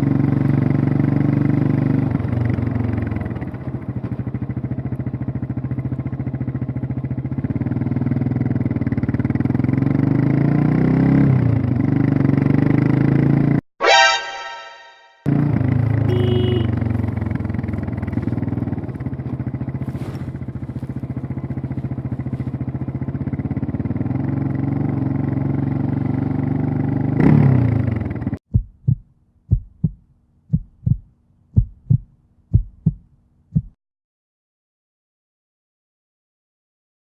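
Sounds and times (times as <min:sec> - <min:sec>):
motorcycle engine running: 0:00.0 - 0:13.6, 0:15.3 - 0:33.0
slow low thuds: 0:28.5 - 0:33.8.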